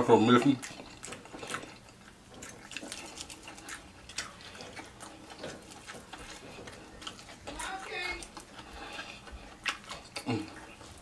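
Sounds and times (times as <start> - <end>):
chewing crispy fried chicken: 0.0 - 11.0.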